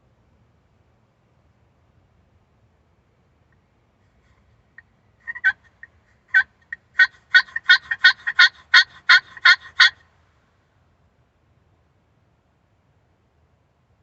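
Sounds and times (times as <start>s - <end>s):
turkey call yelps: 4.8s - 10.0s.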